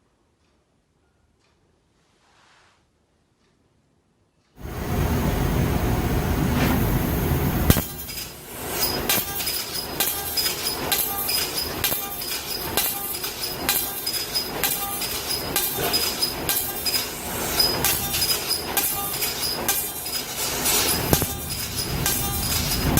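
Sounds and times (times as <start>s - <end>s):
laser cutter rushing noise: 4.6s - 22.9s
gantry clicking and whirring: 6.7s - 22.9s.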